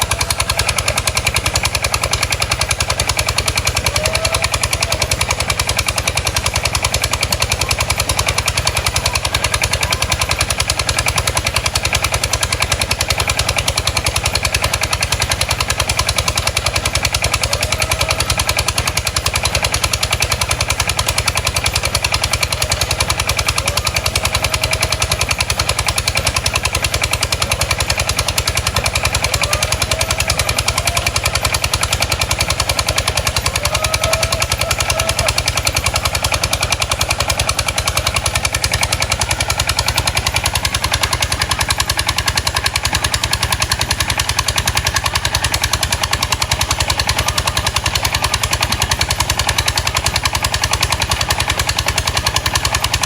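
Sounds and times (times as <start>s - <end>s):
boat diesel engine running: 0.0s - 53.0s.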